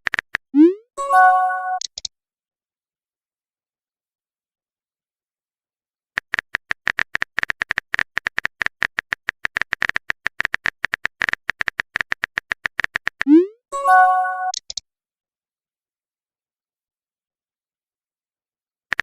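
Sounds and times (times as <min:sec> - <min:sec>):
notification chime: 0:00.6 - 0:01.8, 0:13.8 - 0:14.6
phone keyboard typing clicks: 0:06.2 - 0:13.3, 0:14.4 - 0:14.8.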